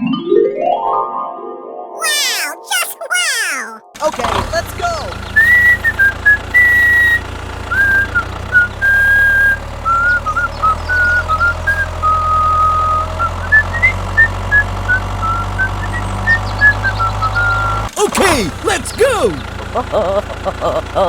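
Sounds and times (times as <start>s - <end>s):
whistled tune: 5.4s - 17.8s.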